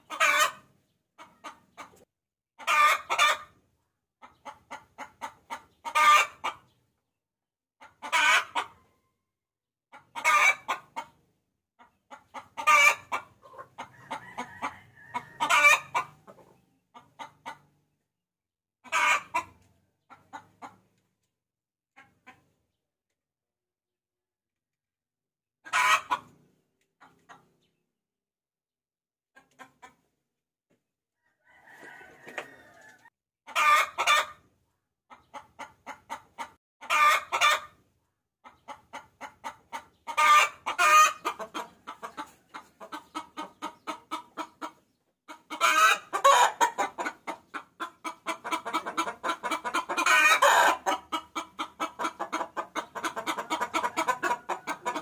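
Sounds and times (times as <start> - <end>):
hen cackling: 0.0 - 2.0, 2.6 - 3.6, 4.2 - 6.7, 7.8 - 8.8, 9.9 - 11.1, 11.8 - 17.6, 18.8 - 20.8, 25.6 - 26.3, 31.4 - 34.4, 35.1 - 37.8, 38.4 - 55.0.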